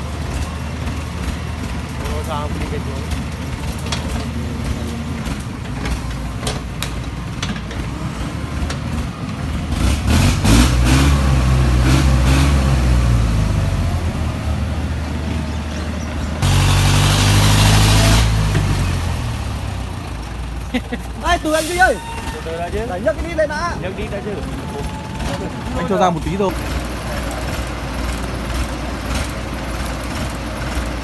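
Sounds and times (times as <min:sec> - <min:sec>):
diesel engine revving: 0:00.0 - 0:31.0
loud hiss: 0:16.4 - 0:19.2, 0:21.2 - 0:22.4.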